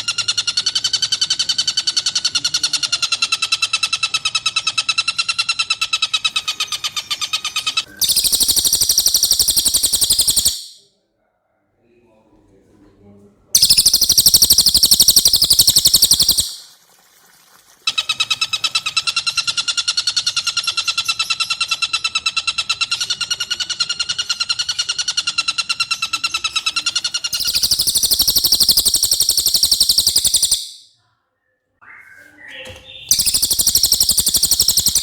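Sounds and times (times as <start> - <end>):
songbird trilling: 6.2 - 10.8, 13.6 - 16.6, 22.8 - 30.9, 32.5 - 35.0.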